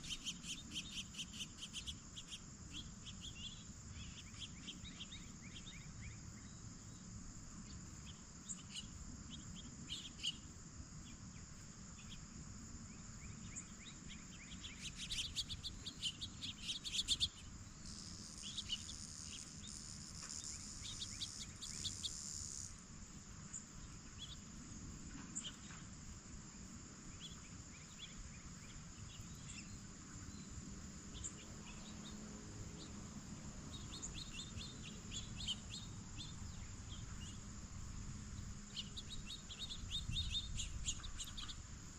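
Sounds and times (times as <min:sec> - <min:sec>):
bird chirps: 0:00.0 - 0:06.6, 0:13.2 - 0:22.7, 0:33.6 - 0:37.5, 0:38.7 - 0:41.7
insects chirping chorus: 0:00.0 - 0:41.9.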